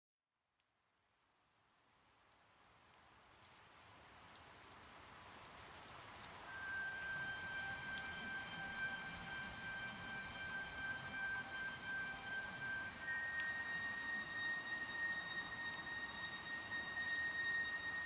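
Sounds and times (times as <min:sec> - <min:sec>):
rain hissing: 0:05.8 - 0:18.0
held high musical note: 0:06.5 - 0:18.0.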